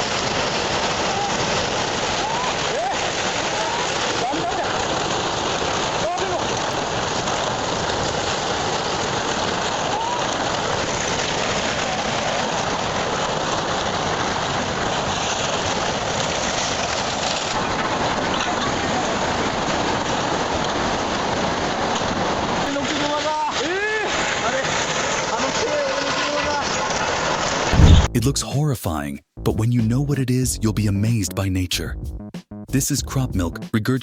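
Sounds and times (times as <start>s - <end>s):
water rushing loudly: 0.0s - 26.7s, 27.7s - 28.1s.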